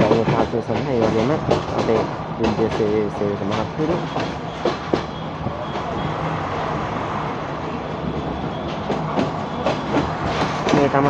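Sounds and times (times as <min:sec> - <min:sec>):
sharp clacks: 0:00.0 - 0:05.9, 0:08.1 - 0:11.0
train wheels rumbling and rattling: 0:00.0 - 0:11.0.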